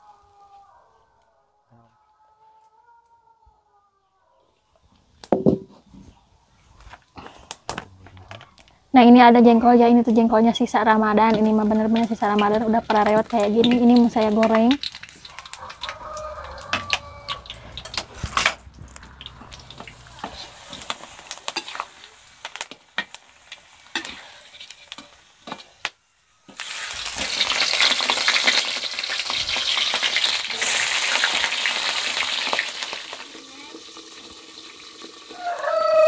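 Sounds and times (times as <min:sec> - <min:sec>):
fish frying loud sizzle: 0:10.0 - 0:36.0
food sizzling in a wok: 0:10.6 - 0:36.0
metal spatula knocking pan: 0:11.2 - 0:15.0.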